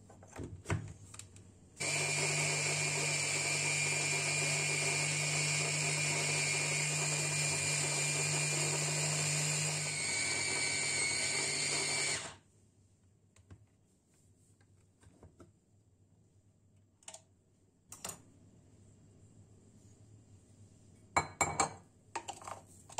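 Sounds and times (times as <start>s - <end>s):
electric appliance motor running: 1.8s - 12.4s.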